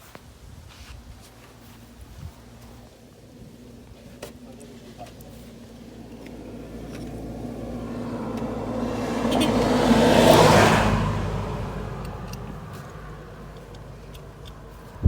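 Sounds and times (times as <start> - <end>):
low engine hum: 1.0 - 15.0
car passing by: 5.5 - 15.0.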